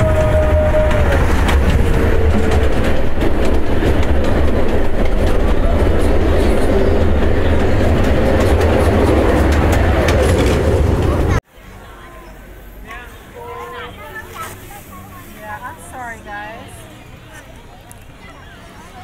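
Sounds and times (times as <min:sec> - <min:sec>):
train wheels rumbling on rails: 0:00.0 - 0:11.4.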